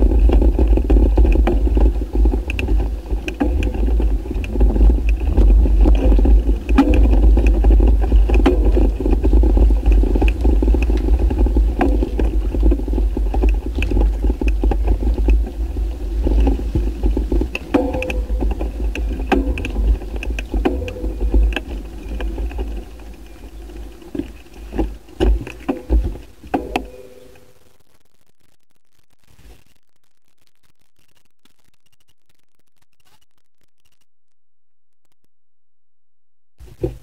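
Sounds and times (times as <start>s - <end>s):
wind buffeting microphone: 0.0s - 26.5s.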